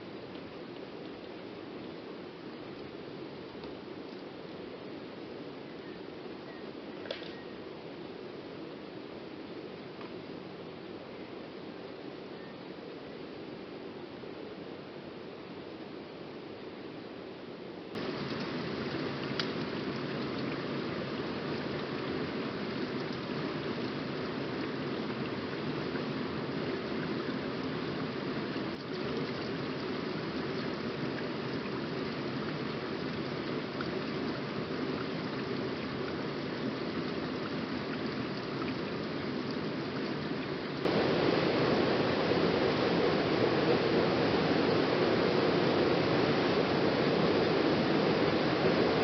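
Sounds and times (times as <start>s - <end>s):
waterfall rushing: 18.0s - 49.0s.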